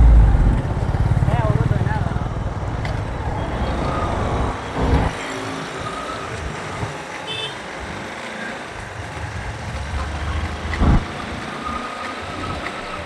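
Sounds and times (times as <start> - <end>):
loud low rumble: 0.0 - 2.8, 10.8 - 11.0
motorcycle engine and road rumble: 0.0 - 13.0.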